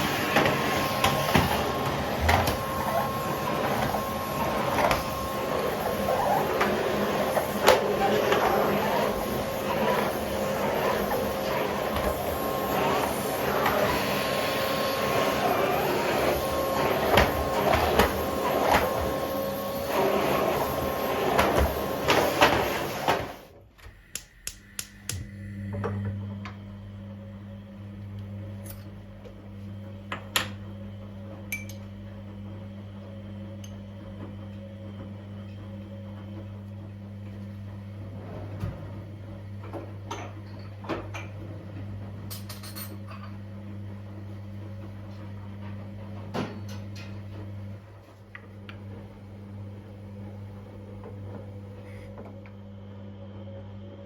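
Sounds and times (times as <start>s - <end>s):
low steady hum: 23.7s - 28.8s.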